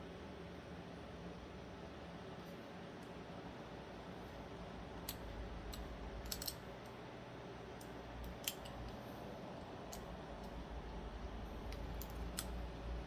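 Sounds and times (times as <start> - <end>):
clicks and taps of knife parts: 5.1 - 6.6.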